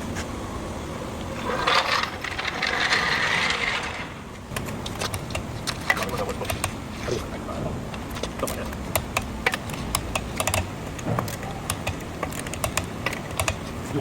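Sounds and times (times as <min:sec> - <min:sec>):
rattling hissy tool noise: 0:01.1 - 0:07.0
sharp clicks: 0:07.9 - 0:13.7.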